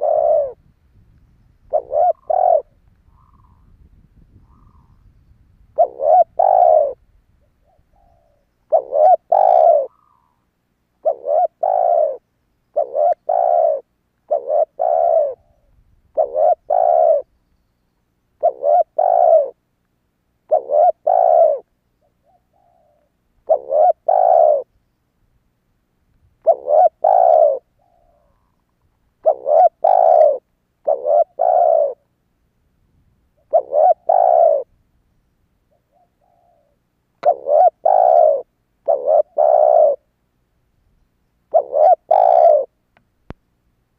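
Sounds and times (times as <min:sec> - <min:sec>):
dove cooing: 0:00.0 - 0:00.6, 0:01.6 - 0:05.0, 0:05.7 - 0:10.4, 0:11.0 - 0:17.3, 0:18.4 - 0:19.6, 0:20.5 - 0:24.7, 0:26.4 - 0:28.6, 0:29.2 - 0:32.1, 0:33.4 - 0:34.7, 0:35.7 - 0:40.1, 0:41.5 - 0:42.8.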